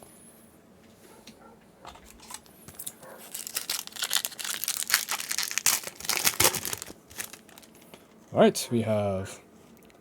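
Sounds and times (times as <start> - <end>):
foil wrapper crinkling and tearing: 2.2 - 8.0.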